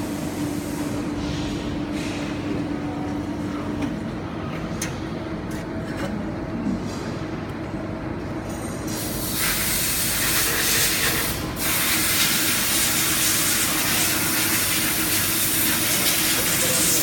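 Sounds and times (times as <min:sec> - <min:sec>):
spray hiss: 0:09.0 - 0:17.0.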